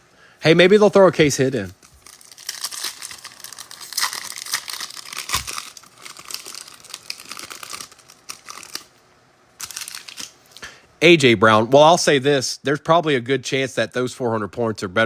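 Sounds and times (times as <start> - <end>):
wrapper tearing and crinkling: 1.8 - 9.0, 9.6 - 10.4.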